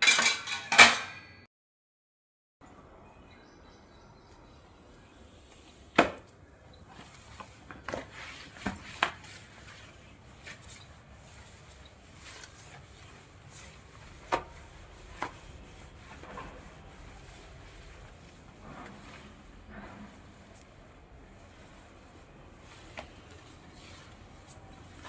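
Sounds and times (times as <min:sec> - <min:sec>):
rubbing and scraping: 0:06.9 - 0:25.0.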